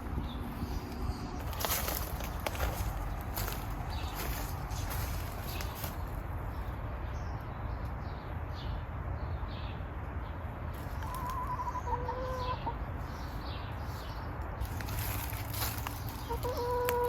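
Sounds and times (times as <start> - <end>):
chickens clucking: 10.8 - 13.4, 14.6 - 17.0.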